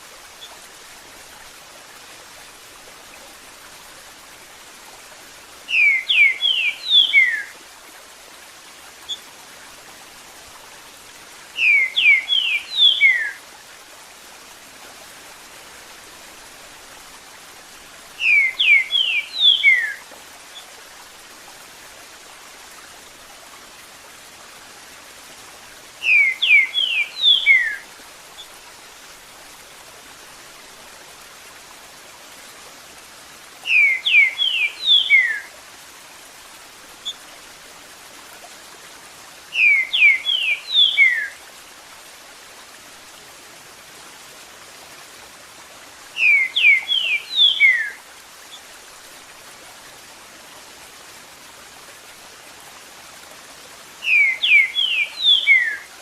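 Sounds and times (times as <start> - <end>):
trickling water: 0.0 - 56.0
bird singing downward phrases: 5.7 - 7.5, 11.6 - 13.4, 18.2 - 20.0, 26.0 - 27.8, 33.7 - 35.4, 39.6 - 41.3, 46.2 - 48.0, 54.0 - 55.9.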